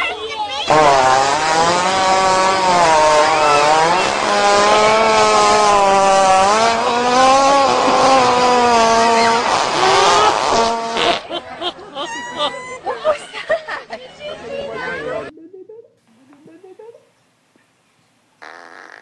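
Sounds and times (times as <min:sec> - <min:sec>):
hippopotamus farting: 0:00.7 - 0:11.2, 0:18.4 - 0:19.0.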